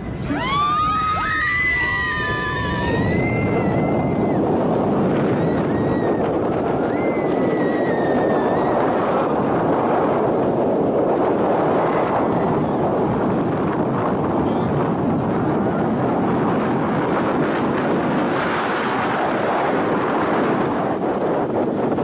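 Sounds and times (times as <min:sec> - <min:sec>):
wind noise on microphone: 0:00.0 - 0:22.0
high wavering scream: 0:00.2 - 0:04.4.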